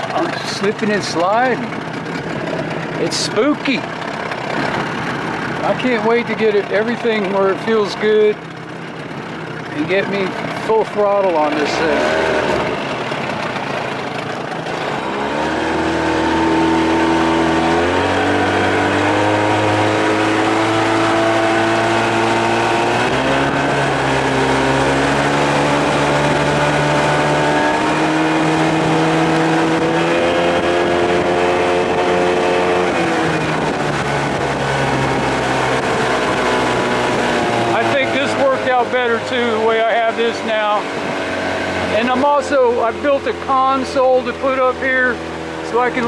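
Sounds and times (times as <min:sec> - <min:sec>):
outboard motor running: 0:00.0 - 0:46.0.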